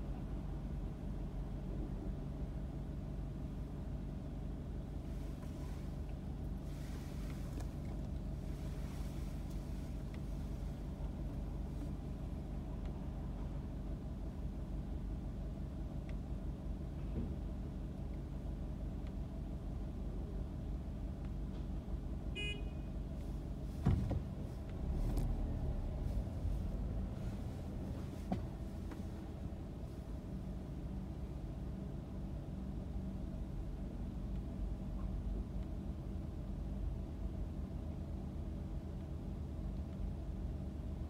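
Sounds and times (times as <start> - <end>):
thump: 23.8 - 24.3, 28.3 - 29.0.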